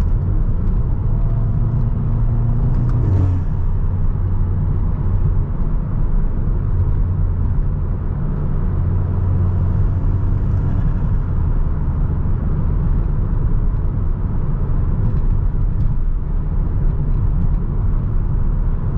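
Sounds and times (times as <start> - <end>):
low engine drone: 0.0 - 18.9
road noise: 0.0 - 18.9.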